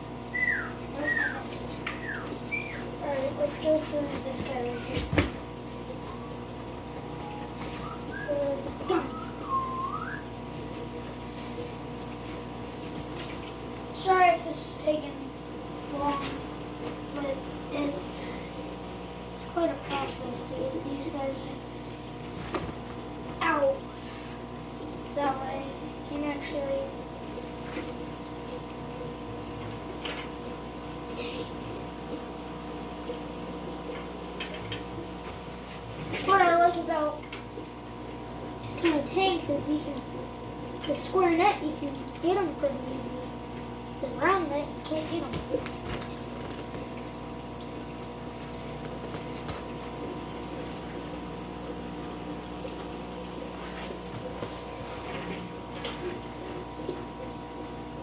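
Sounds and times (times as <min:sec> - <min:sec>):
steady hum: 0:00.0 - 0:58.0
water swishes: 0:00.0 - 0:58.0
small water splashes: 0:41.6 - 0:42.4, 0:43.2 - 0:58.0.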